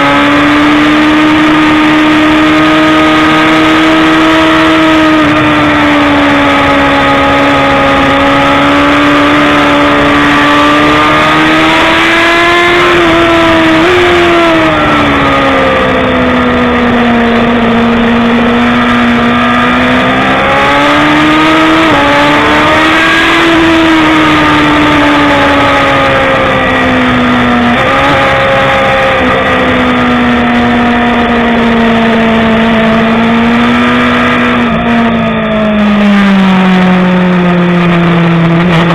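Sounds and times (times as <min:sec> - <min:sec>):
motorcycle engine running hard: 0:00.0 - 0:38.9
steady rushing noise: 0:00.0 - 0:38.9.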